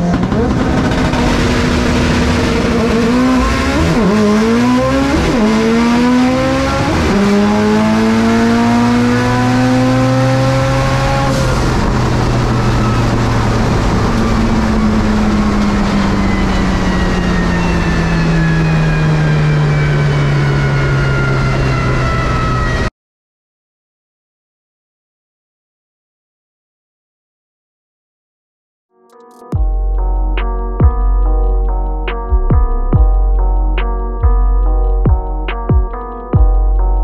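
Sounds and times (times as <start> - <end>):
car engine at full throttle: 0.0 - 22.9.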